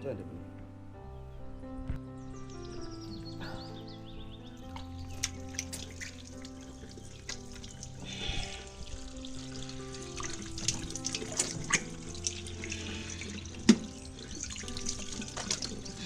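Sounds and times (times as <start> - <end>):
background music: 0.0 - 16.0
tap water splashing: 4.7 - 16.0.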